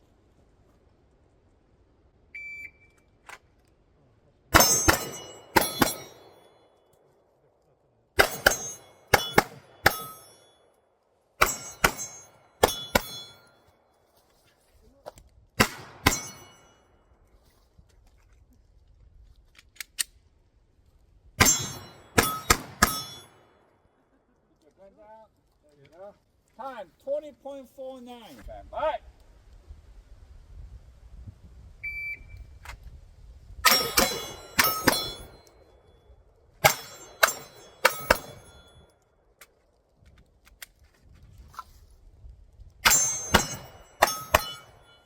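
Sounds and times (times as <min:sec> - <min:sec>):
shot timer beep: 0:02.4 - 0:03.0, 0:31.8 - 0:32.4
pistol shots: 0:04.5 - 0:06.4, 0:08.2 - 0:10.3, 0:11.4 - 0:13.4, 0:15.6 - 0:16.6, 0:21.4 - 0:23.3, 0:33.6 - 0:35.3, 0:42.8 - 0:45.0
steel targets ringing: 0:04.6 - 0:06.7, 0:08.2 - 0:10.7, 0:11.4 - 0:13.7, 0:15.6 - 0:17.0, 0:21.4 - 0:23.5, 0:33.6 - 0:35.8, 0:36.6 - 0:38.9, 0:42.8 - 0:45.0.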